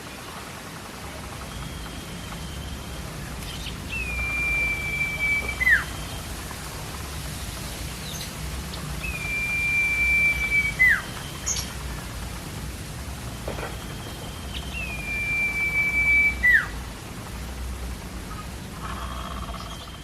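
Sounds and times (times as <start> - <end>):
steady hiss: 0.0 - 20.0
bird whistling: 1.5 - 6.2, 9.0 - 11.7, 13.6 - 16.8.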